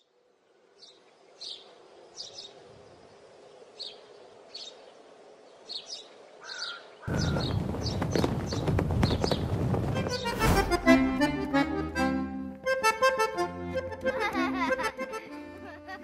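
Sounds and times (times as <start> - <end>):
birds chirping: 0.0 - 13.5.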